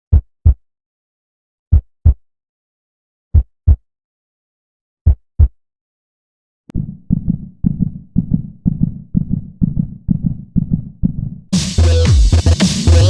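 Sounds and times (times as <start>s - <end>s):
heartbeat double thumps: 0.1s - 0.6s, 1.7s - 2.2s, 3.3s - 3.8s, 5.0s - 5.6s, 6.7s - 13.0s.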